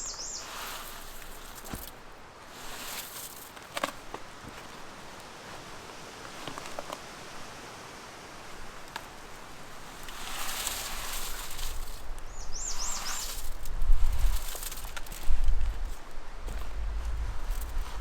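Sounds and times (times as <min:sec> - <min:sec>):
outdoor rustling: 0:00.0 - 0:18.0.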